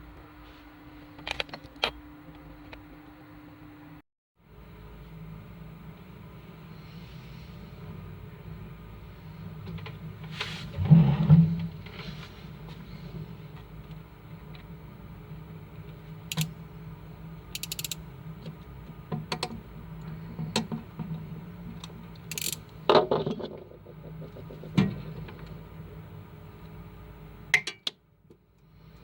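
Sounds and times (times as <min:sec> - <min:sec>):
steady low hum: 0:00.0 - 0:29.0
clicks and knocks of small parts: 0:16.3 - 0:16.5, 0:17.6 - 0:18.0, 0:21.8 - 0:23.6.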